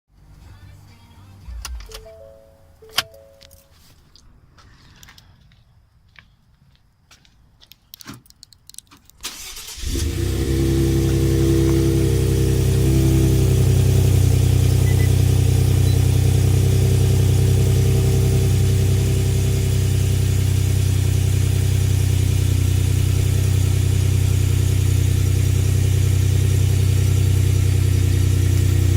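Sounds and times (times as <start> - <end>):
car engine starting and idling: 9.2 - 28.9.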